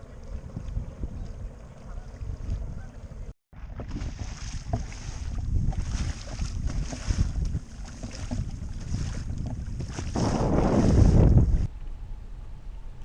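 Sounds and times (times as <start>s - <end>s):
wind buffeting microphone: 0.0s - 11.8s
small knocks on kayak: 3.8s - 4.9s.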